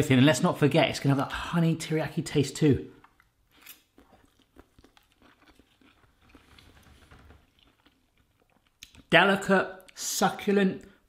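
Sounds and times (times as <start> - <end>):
faint chewing: 3.0 - 9.1.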